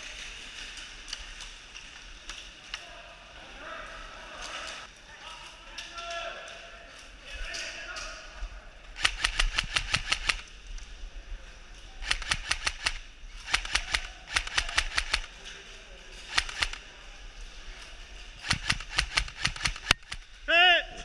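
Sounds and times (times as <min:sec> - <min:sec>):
airsoft guns firing in bursts: 0:09.0 - 0:10.5, 0:12.0 - 0:15.4, 0:16.2 - 0:16.8, 0:18.4 - 0:20.4.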